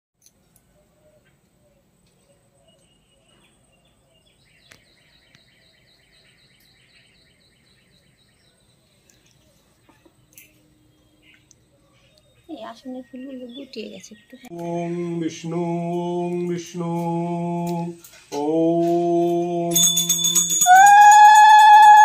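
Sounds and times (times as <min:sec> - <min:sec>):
bird chirping: 0:00.2 - 0:17.2.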